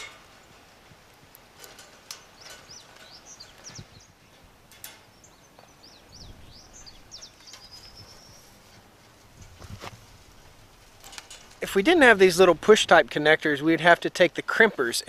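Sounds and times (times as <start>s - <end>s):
small birds chirping: 0.0s - 9.6s.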